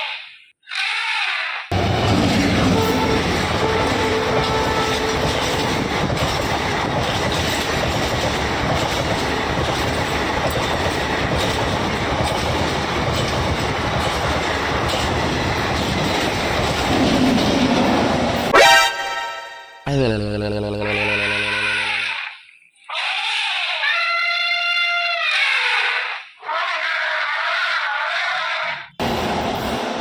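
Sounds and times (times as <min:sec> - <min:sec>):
wheels clattering over rail joints: 0:01.7 - 0:18.5
passenger train passing: 0:01.7 - 0:19.8, 0:29.0 - 0:30.0
train horn blast: 0:02.4 - 0:05.8.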